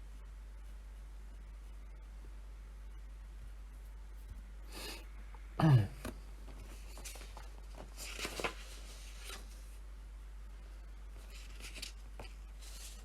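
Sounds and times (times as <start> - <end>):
person coughing: 5.6 - 6.1
faint clicks and rustles: 6.0 - 9.8, 11.1 - 13.0.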